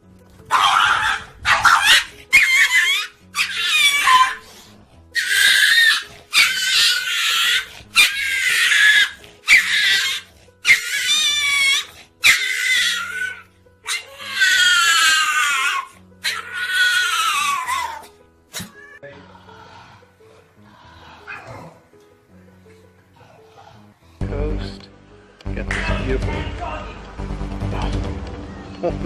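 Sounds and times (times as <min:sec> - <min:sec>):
quiet background music: 0:00.0 - 0:29.0
animal high-pitched cries: 0:00.5 - 0:04.5, 0:05.1 - 0:19.0.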